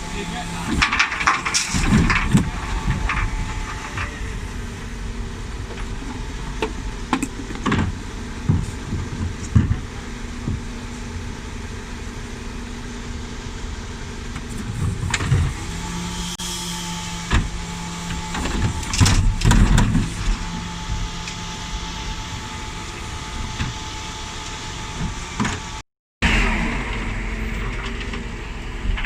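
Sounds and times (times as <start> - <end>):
refuse truck engine droning: 0.0 - 29.0.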